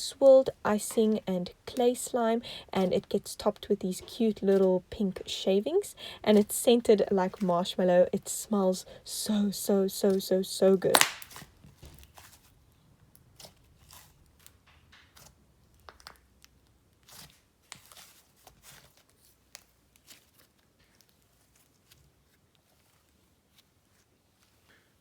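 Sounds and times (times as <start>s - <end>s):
slime sticky clicks and crackles: 10.9s - 11.5s.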